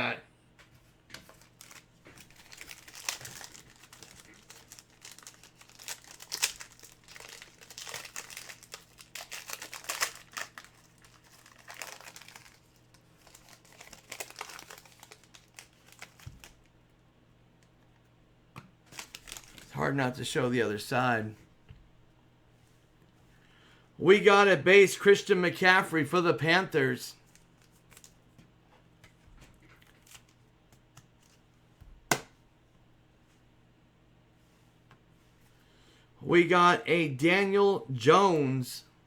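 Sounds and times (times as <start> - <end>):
plastic crinkling and rustling: 0.8 - 16.7, 18.9 - 19.8, 27.2 - 28.2, 29.5 - 30.4.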